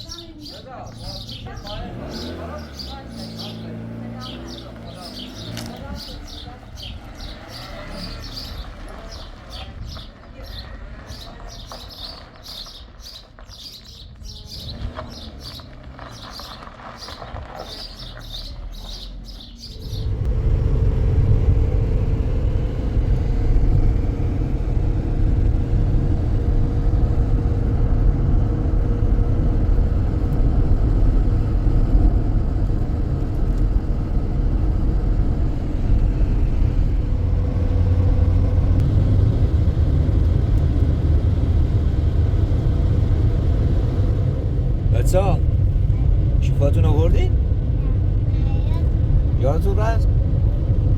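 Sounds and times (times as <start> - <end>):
bird chirping rapidly: 0.0 - 20.2
vehicle engine and road rumble: 0.0 - 50.9.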